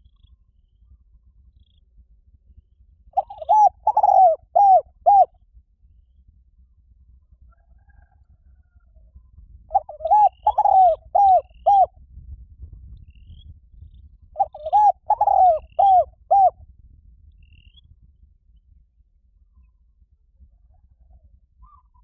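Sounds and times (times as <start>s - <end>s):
dove cooing: 3.2s - 5.3s, 9.7s - 11.9s, 14.4s - 16.6s.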